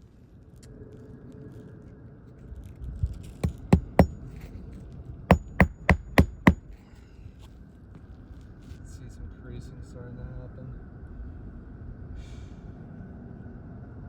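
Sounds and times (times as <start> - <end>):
hammer striking nails into shingles: 3.4 - 4.4, 5.3 - 6.6.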